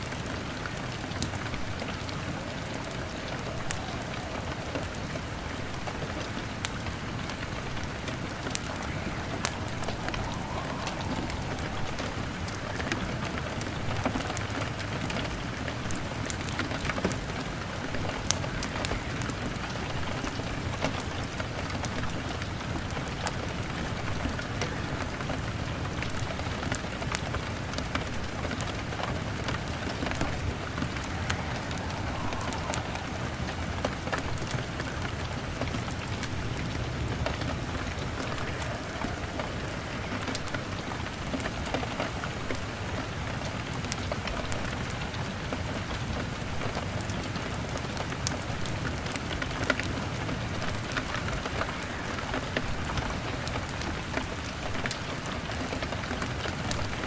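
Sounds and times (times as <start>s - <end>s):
wood fire crackling: 0.0s - 45.0s
rain pattering on window glass: 0.0s - 57.0s.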